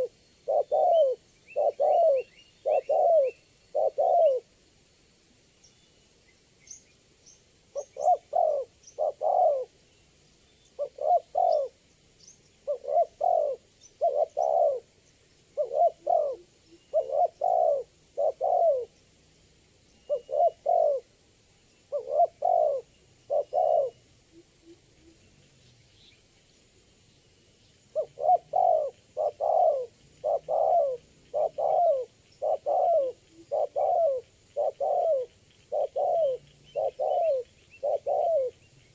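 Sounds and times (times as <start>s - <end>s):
dove cooing: 0.0s - 4.6s, 7.7s - 9.8s, 10.7s - 11.8s, 12.6s - 19.0s, 20.0s - 21.1s, 21.9s - 25.2s, 27.9s - 38.7s
small birds chirping: 0.0s - 38.9s.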